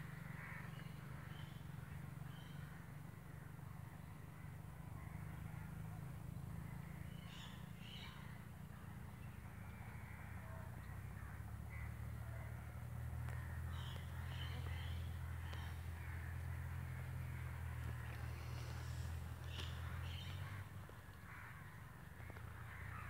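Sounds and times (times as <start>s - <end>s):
steady low rumble: 9.1s - 23.0s.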